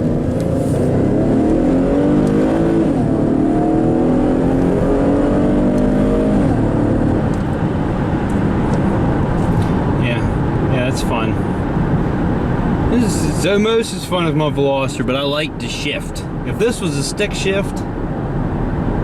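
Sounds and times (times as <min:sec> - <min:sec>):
car engine accelerating: 0:00.0 - 0:13.1.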